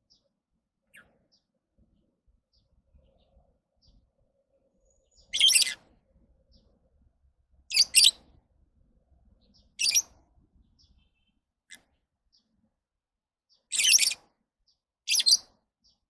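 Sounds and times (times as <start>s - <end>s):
lovebirds chirping: 4.8s - 5.9s, 7.7s - 8.3s, 9.4s - 12.5s, 13.6s - 14.2s, 15.1s - 16.0s.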